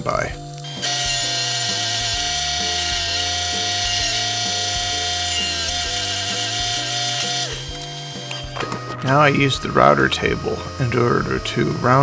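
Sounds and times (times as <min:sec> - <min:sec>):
background music with bass line: 0:00.0 - 0:12.0
drill press drilling wood: 0:00.0 - 0:12.0.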